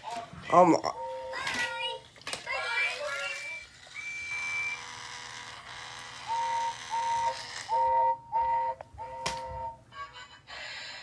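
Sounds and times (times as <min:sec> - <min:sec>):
toy train electronic whistle toots: 0:06.2 - 0:09.8.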